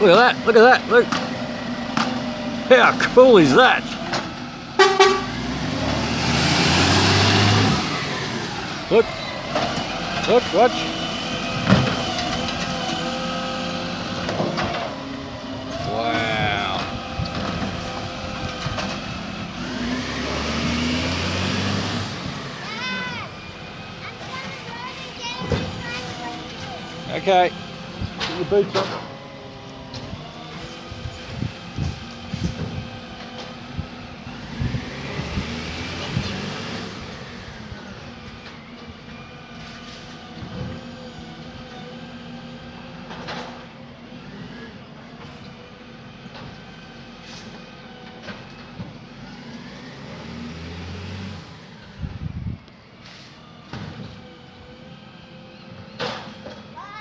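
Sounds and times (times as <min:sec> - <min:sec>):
whining tones: 0:00.0 - 0:21.4
garbage truck engine revving: 0:00.0 - 0:57.0
short voice exclamation: 0:15.8 - 0:17.0.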